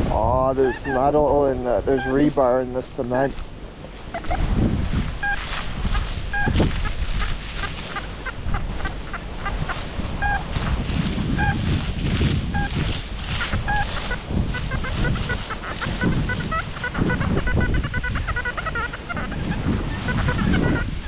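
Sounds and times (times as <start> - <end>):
wind buffeting microphone: 0.0 - 21.0
metal detector beeps: 5.2 - 5.4.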